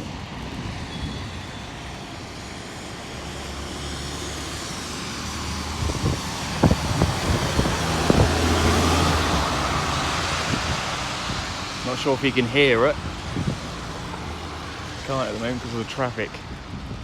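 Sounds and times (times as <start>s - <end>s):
road traffic: 0.0s - 17.0s
vehicle passing: 3.2s - 15.4s.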